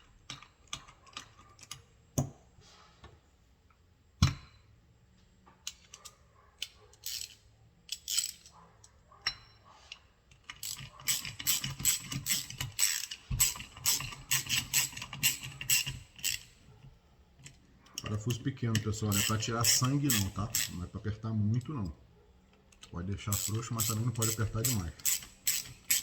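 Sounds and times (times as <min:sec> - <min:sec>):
hand tool clicking: 0:07.0 - 0:08.5, 0:10.3 - 0:16.5, 0:17.9 - 0:20.8, 0:22.7 - 0:26.0.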